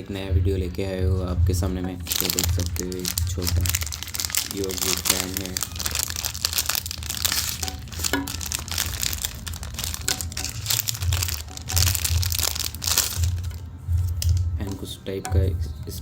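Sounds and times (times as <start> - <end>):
plastic packaging crinkling: 1.9 - 14.9.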